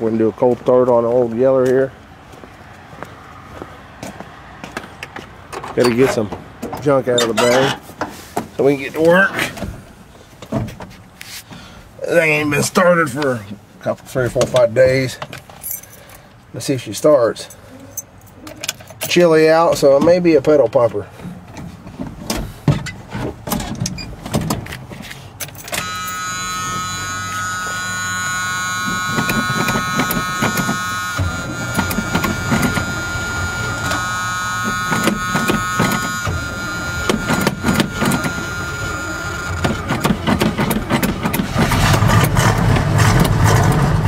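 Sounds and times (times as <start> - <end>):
engine cranking whine: 25.5 - 44.0
engine running: 25.5 - 44.0
gas pedal clicks and knocks: 33.8 - 42.4.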